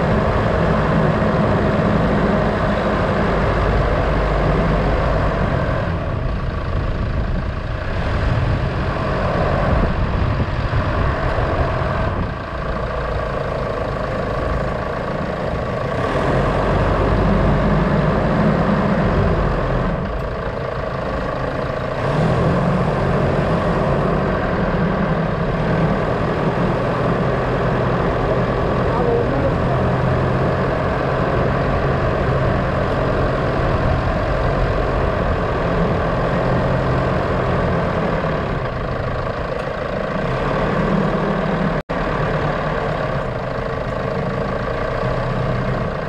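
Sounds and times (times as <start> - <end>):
road noise: 0.0 - 46.0
vehicle engine running while driving: 0.0 - 46.0.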